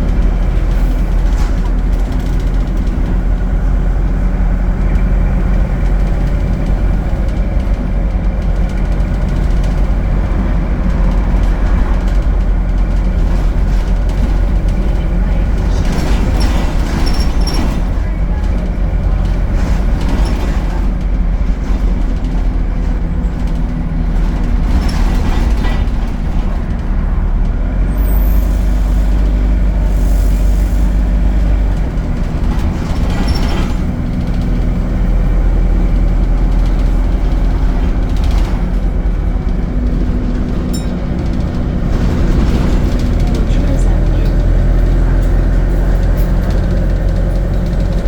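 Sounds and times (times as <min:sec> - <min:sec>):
bus diesel engine running: 0:00.0 - 0:48.0.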